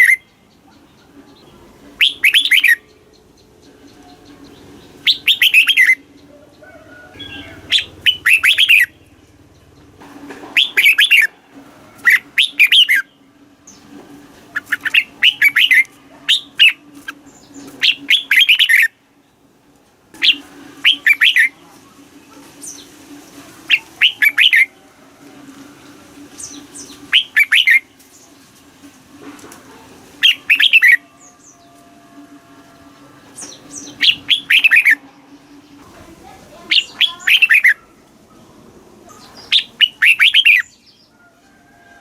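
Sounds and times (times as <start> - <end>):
bird singing warbled phrases: 0.0 - 10.0, 10.6 - 11.3, 12.0 - 13.9, 14.5 - 19.0, 20.2 - 21.6, 23.7 - 24.7, 26.4 - 28.3, 30.2 - 31.8, 33.4 - 38.4, 39.0 - 41.2.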